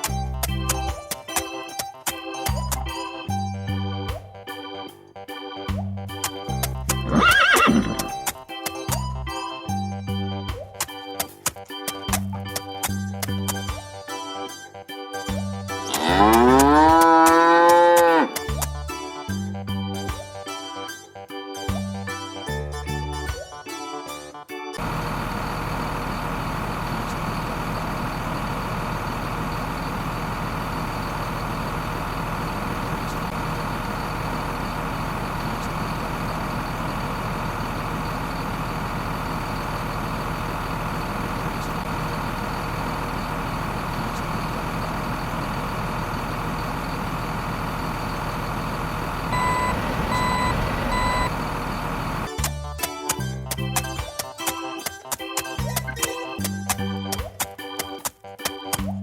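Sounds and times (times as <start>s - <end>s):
heavy vehicle engine running: 24.8s - 54.0s
reversing beeper beeps: 47.8s - 51.9s.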